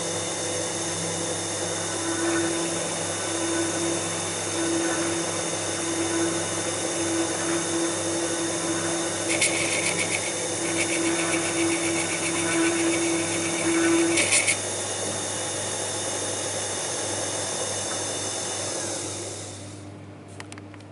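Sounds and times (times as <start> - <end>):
lathe running: 0.0 - 19.7
steady motor whine: 0.0 - 20.0
tool cutting wood rattle: 9.3 - 14.7.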